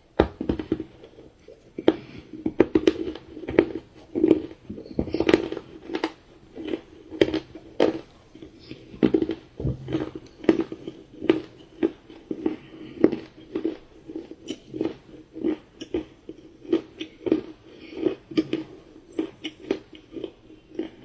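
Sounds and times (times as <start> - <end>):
person chewing: 0.2 - 21.0.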